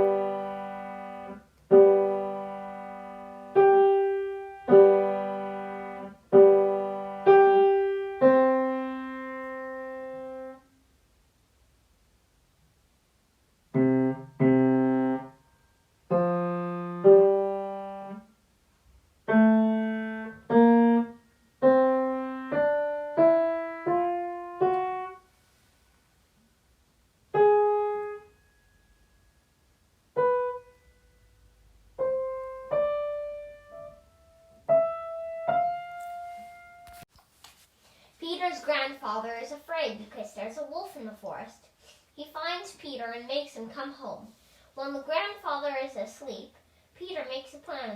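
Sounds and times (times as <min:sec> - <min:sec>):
piano playing slow tune: 0:00.0 - 0:10.6, 0:13.8 - 0:15.4, 0:16.1 - 0:18.2, 0:19.3 - 0:25.2, 0:27.3 - 0:37.1.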